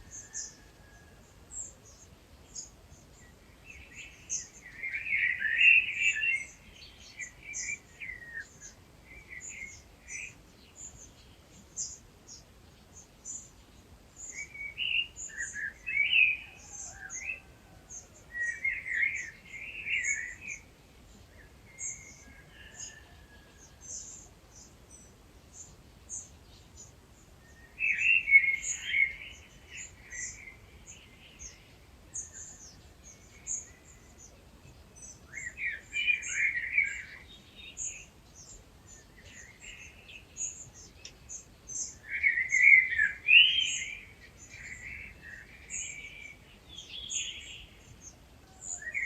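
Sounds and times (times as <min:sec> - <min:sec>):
bird warbling song: 0:00.0 - 0:49.0.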